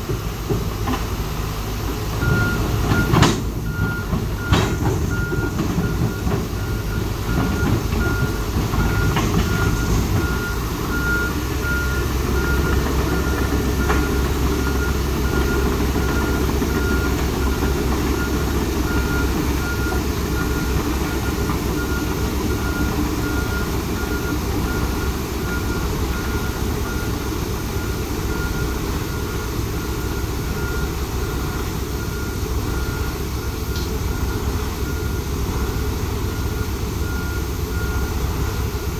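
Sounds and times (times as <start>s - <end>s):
diesel engine rumbling: 0.0s - 38.9s
backup alarm beeping: 2.2s - 38.9s.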